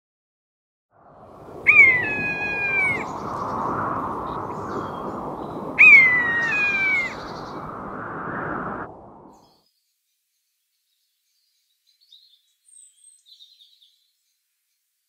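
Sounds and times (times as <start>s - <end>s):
rushing outdoor background: 1.2s - 9.4s
bird calling: 1.5s - 7.9s.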